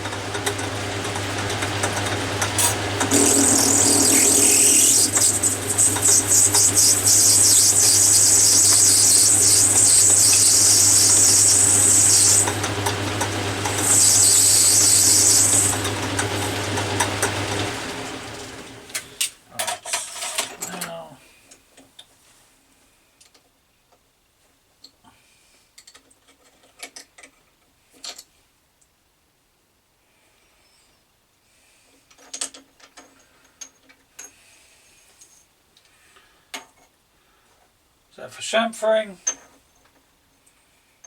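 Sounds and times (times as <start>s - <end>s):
lathe motor hum: 0.1s - 19.2s
tool cutting brass hiss: 2.6s - 15.9s.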